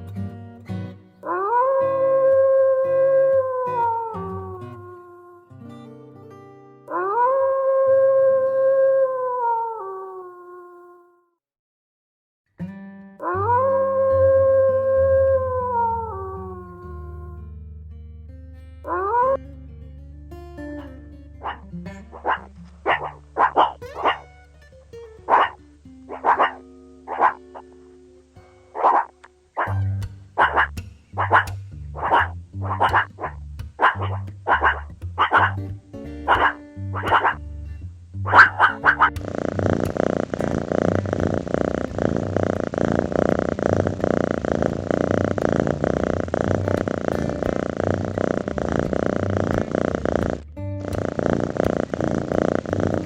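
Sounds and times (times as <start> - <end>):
animal purring: 1.2 - 5.4, 6.9 - 10.4, 13.2 - 17.4, 18.9 - 19.4, 21.4 - 24.4, 25.2 - 37.4, 38.2 - 53.0
dog barking: 21.4 - 24.3, 25.3 - 27.7, 28.8 - 29.8, 30.4 - 35.6, 36.2 - 37.4, 38.3 - 39.1.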